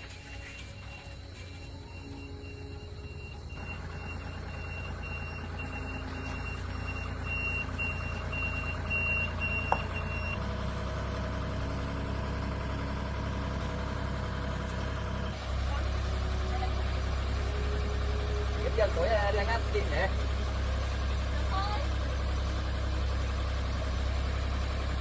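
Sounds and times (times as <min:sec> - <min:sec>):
truck engine running: 0:00.0 - 0:25.0
truck reversing alarm beeping: 0:00.0 - 0:25.0.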